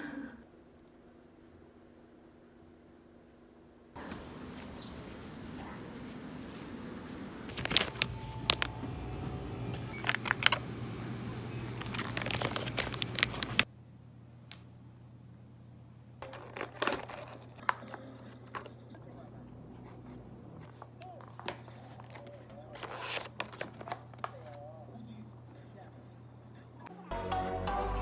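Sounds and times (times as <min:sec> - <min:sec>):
clicks and knocks of handling: 0:04.0 - 0:08.9, 0:11.7 - 0:13.7, 0:16.2 - 0:24.6
crinkling and rustling: 0:04.0 - 0:13.7, 0:16.2 - 0:26.9.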